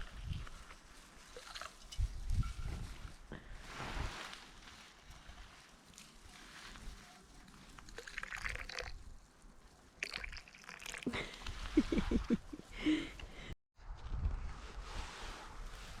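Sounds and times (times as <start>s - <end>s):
tea pouring into a cup: 7.9s - 9.0s, 10.0s - 11.1s.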